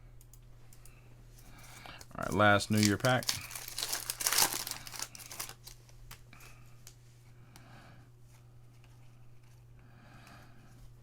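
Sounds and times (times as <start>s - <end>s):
cards rustling: 2.0s - 6.6s
foil wrapper crinkling: 2.2s - 6.6s.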